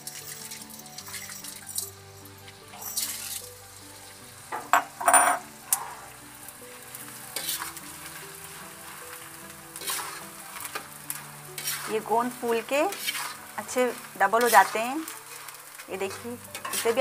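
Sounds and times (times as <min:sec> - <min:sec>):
metal skimmer stirring pan: 0:00.0 - 0:03.5, 0:07.3 - 0:17.0
gum sizzling in hot oil: 0:00.0 - 0:17.0.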